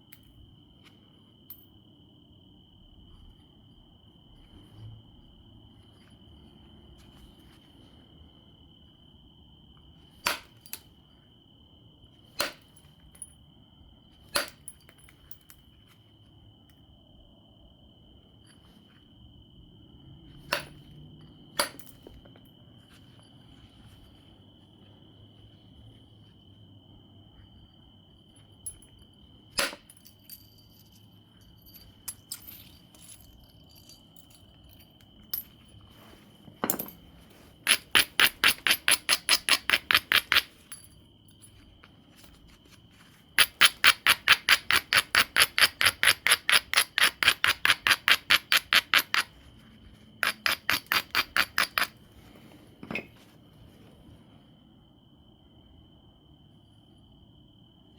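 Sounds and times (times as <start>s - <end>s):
tool clicking on stone: 10.2s - 10.9s, 12.4s - 12.7s, 14.3s - 15.0s, 21.6s - 22.0s, 29.6s - 30.0s, 37.6s - 40.9s, 43.4s - 49.4s, 50.2s - 52.0s.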